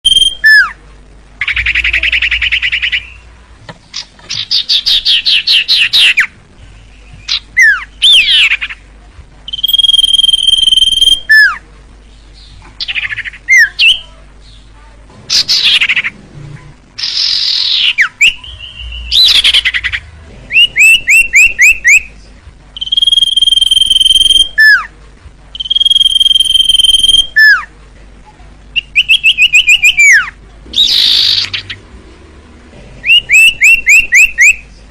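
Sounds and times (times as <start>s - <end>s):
bird singing whistles and trills: 0.0s - 0.8s, 1.4s - 3.3s, 6.9s - 8.8s, 9.5s - 11.6s, 17.0s - 22.1s, 22.8s - 24.9s, 25.6s - 27.7s, 28.8s - 31.8s, 33.0s - 34.6s.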